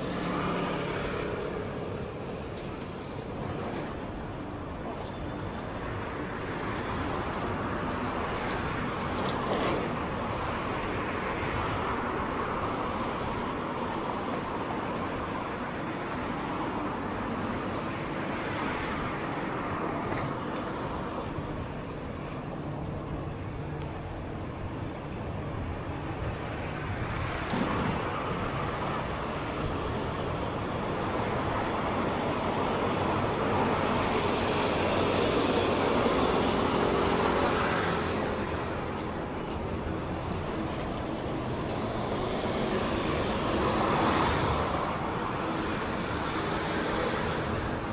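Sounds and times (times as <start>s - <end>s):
road traffic passing: 0.0s - 47.9s.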